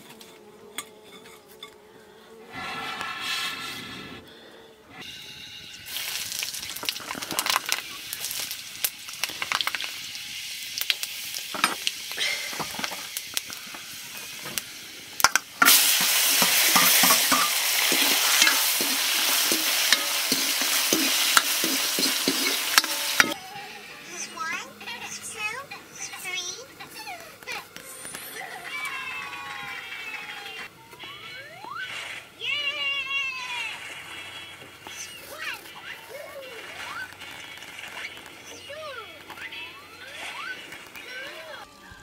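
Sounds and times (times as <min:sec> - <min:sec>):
spatula scraping a pan: 0:00.0 - 0:01.8, 0:02.5 - 0:04.2, 0:15.6 - 0:23.4
hot oil crackling and spitting: 0:05.0 - 0:23.4, 0:36.6 - 0:38.6
vegetables frying sizzle: 0:05.1 - 0:23.4.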